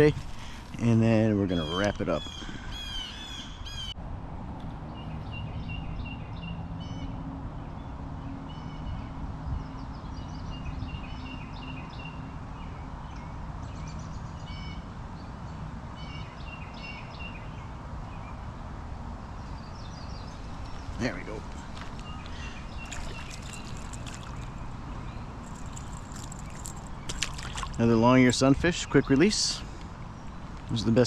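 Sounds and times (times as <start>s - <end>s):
birds calling: 0.0s - 4.0s, 19.4s - 31.0s.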